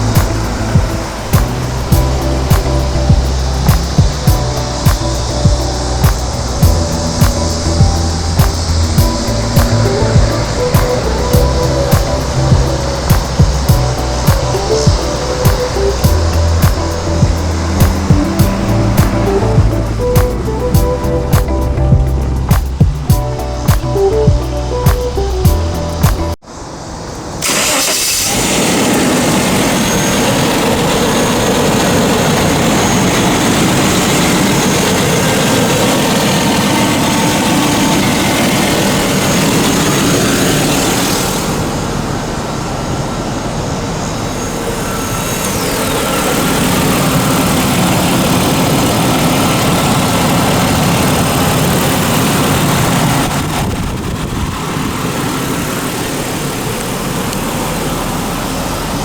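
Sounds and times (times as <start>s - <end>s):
car engine running: 0.0s - 26.4s, 27.4s - 59.0s
wind and road noise: 0.0s - 59.0s.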